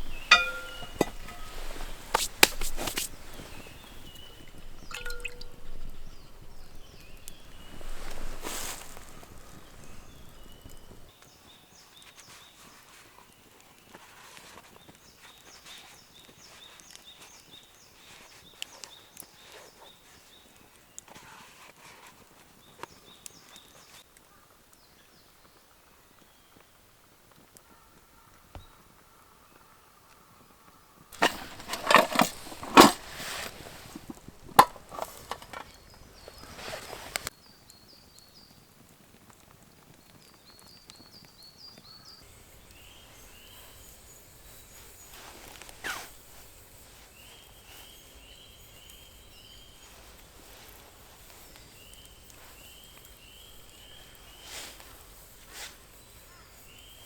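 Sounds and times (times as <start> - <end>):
knocks clatter and scraping: 0.0 - 11.1, 31.2 - 37.3
small bird chirping: 0.0 - 11.1, 31.2 - 38.5, 40.5 - 57.0.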